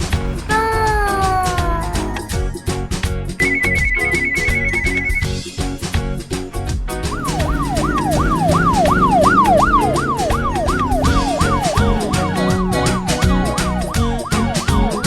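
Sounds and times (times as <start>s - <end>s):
background music with steady beat: 0.0s - 15.0s
emergency vehicle siren: 7.1s - 15.0s.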